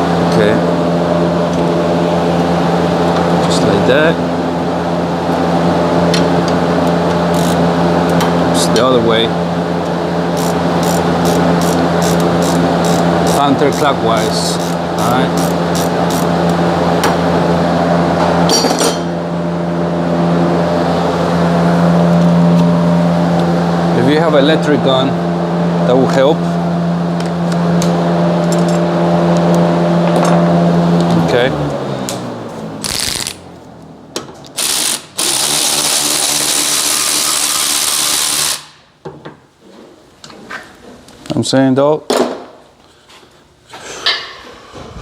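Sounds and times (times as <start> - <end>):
steady low hum: 0.0 - 41.8
power ratchet spinning: 7.2 - 7.7, 10.3 - 16.6, 32.8 - 33.5, 34.5 - 38.8.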